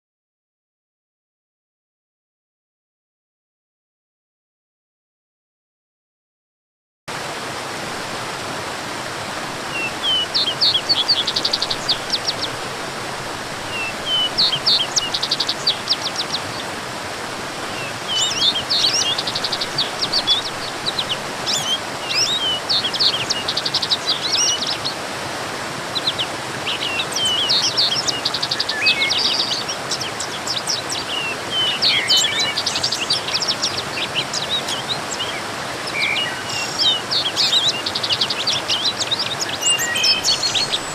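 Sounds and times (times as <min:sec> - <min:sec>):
waterfall rushing: 0:07.1 - 0:40.9
songbirds singing: 0:09.3 - 0:40.9.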